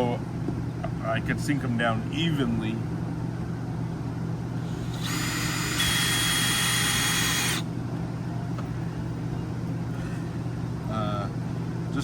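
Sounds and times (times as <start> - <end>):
steady low hum: 0.0 - 12.0
power drill driving a screw: 4.6 - 7.6.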